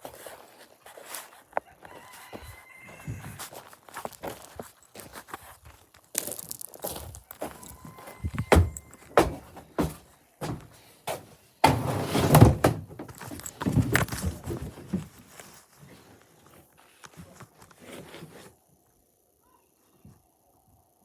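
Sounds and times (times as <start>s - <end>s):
clattering and scraping: 6.5s - 18.5s
thumps and knocks: 7.4s - 15.1s.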